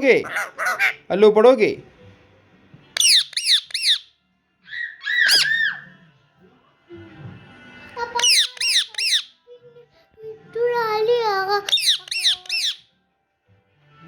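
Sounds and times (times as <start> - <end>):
parakeet screeching: 0.0 - 1.2, 3.0 - 6.0, 8.1 - 9.4, 11.6 - 12.9.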